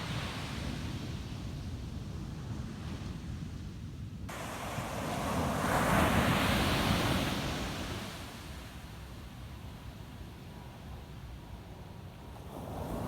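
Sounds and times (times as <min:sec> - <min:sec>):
low rumble of surf: 0:00.0 - 0:13.0
wave breaking and washing in: 0:04.3 - 0:08.6.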